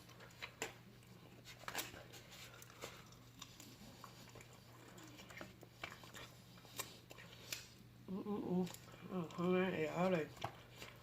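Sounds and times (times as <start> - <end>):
wet chewing and mouth smacks: 0.0 - 7.9.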